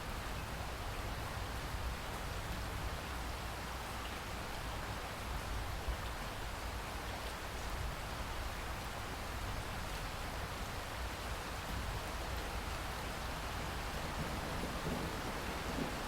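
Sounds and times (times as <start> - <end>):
heavy rain falling: 7.8 - 16.0.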